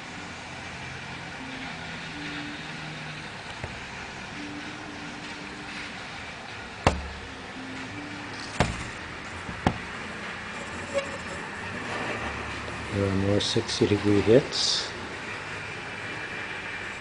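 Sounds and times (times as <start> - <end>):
steady background hiss: 0.0 - 11.7
sharp knocks: 6.8 - 7.2, 8.5 - 9.9.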